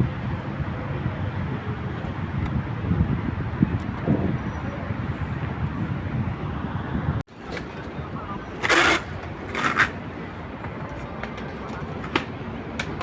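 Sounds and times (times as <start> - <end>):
traffic hum: 0.0 - 13.0
distant voices: 7.3 - 13.0.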